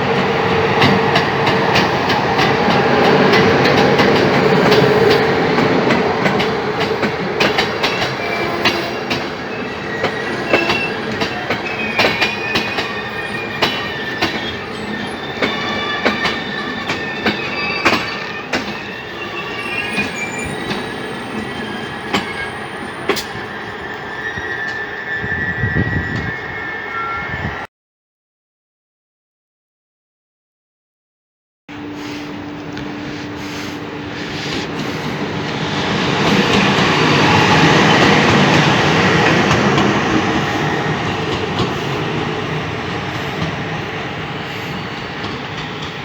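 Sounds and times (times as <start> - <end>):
train wheels clicking over rail joints: 0.2 - 23.4, 32.2 - 43.8
high-pitched wheel squeal: 7.6 - 27.7.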